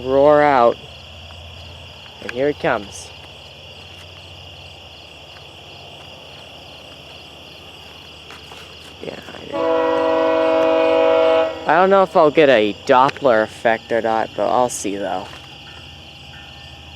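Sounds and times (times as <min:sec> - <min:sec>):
insect buzz: 0:00.0 - 0:16.9
approaching train rumble: 0:08.6 - 0:16.9
train air horn chord: 0:09.5 - 0:12.0.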